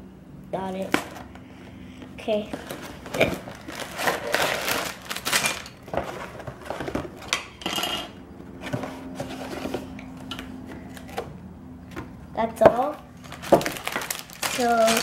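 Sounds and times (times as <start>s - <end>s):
packaging rustling: 2.4s - 7.4s, 13.1s - 15.0s
plastic pieces rattling in bags: 2.7s - 7.4s, 13.2s - 15.0s.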